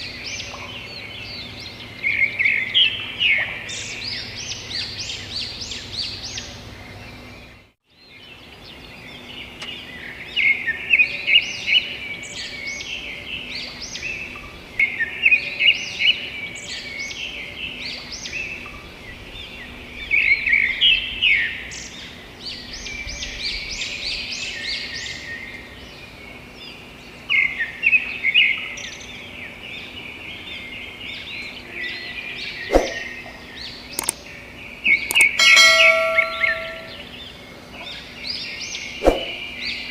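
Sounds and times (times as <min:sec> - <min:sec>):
birds chirping and trilling: 0:00.0 - 0:39.9
sharp click: 0:34.0 - 0:34.2, 0:35.1 - 0:36.8.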